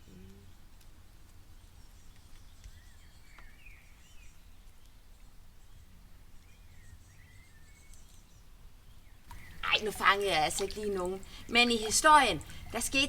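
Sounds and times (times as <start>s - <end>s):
faint bird chirps: 1.6s - 12.8s
low steady hum: 9.3s - 13.0s.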